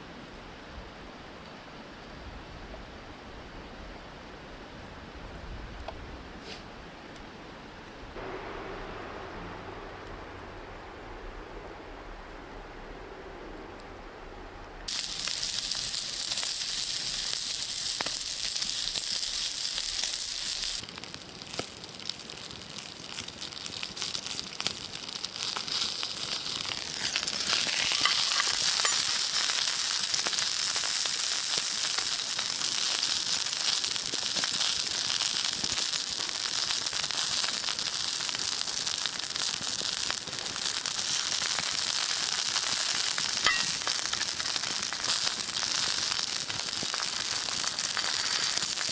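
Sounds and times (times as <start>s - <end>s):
food sizzling and frying: 14.9s - 48.9s.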